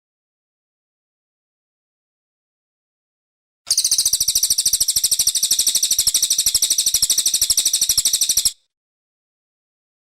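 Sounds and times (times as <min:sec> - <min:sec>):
bird high rapid trill: 0:03.7 - 0:08.6.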